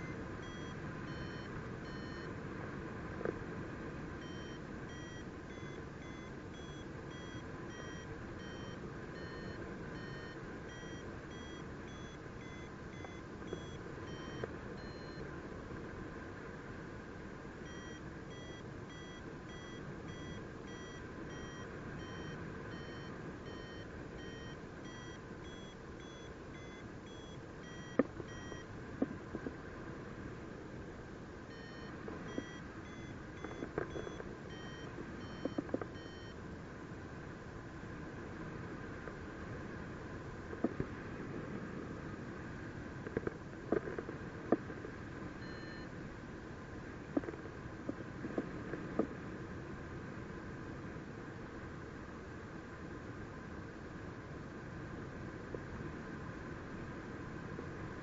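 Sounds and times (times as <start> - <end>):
variometer beeping: 0.0 - 2.3, 4.2 - 15.2, 17.6 - 28.7, 31.5 - 36.4, 45.4 - 45.9.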